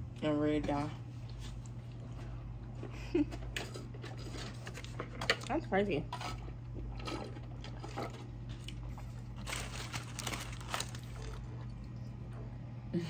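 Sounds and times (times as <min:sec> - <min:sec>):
steady low hum: 0:00.0 - 0:13.0
crunchy bites and chewing: 0:06.7 - 0:12.0.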